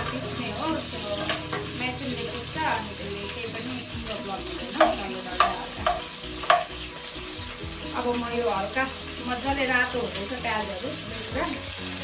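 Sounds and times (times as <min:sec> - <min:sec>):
metal ladle scraping a pan: 0:00.0 - 0:07.9
food sizzling in a frying pan: 0:00.0 - 0:12.0.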